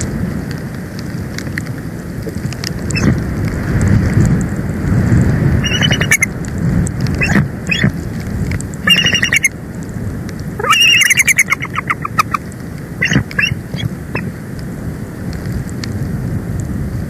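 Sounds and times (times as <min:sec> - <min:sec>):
eagle calling: 0:03.0 - 0:03.2, 0:05.6 - 0:06.3, 0:07.2 - 0:08.0, 0:08.8 - 0:09.5, 0:10.6 - 0:14.3
steady low rush: 0:04.7 - 0:15.1.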